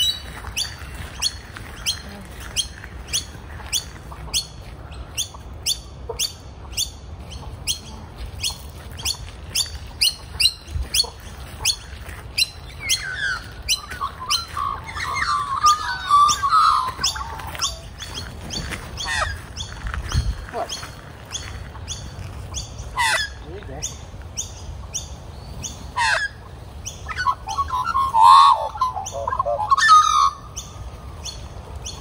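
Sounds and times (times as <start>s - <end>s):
magpies short sharp calls: 5.2s - 24.6s
magpie warbling: 12.4s - 18.3s.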